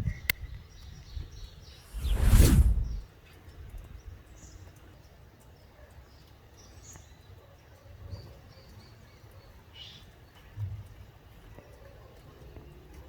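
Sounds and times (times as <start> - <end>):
low wind rumble: 1.9 - 3.1.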